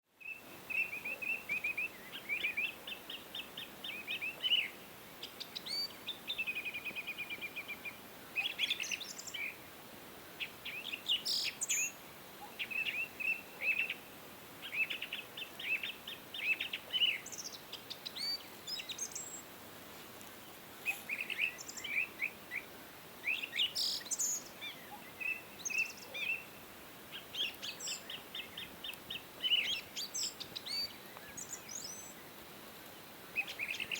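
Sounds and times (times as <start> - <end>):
faint steady hiss: 0.0 - 33.9
birds chirping: 20.4 - 33.9.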